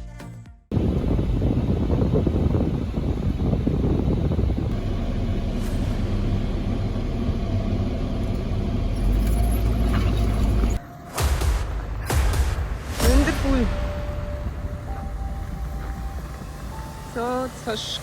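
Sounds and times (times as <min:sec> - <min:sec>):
vehicle engine rumbling: 0:00.7 - 0:18.0.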